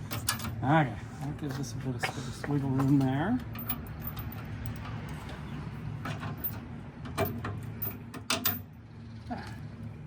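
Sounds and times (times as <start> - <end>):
metal parts knocking and clinking: 0.1 - 0.6, 2.8 - 5.2, 6.1 - 8.7.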